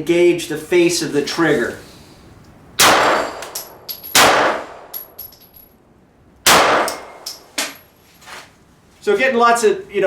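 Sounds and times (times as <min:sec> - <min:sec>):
pistol shots: 0:02.8 - 0:05.0, 0:06.5 - 0:07.4
metallic pings of bullets on steel: 0:03.0 - 0:04.2, 0:04.9 - 0:05.8.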